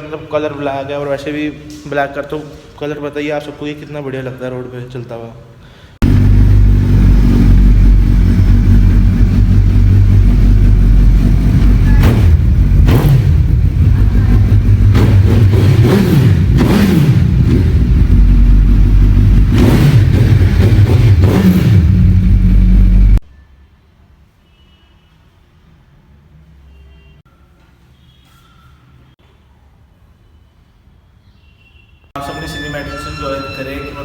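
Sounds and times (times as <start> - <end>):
motorcycle engine idling and revving: 6.0 - 23.2.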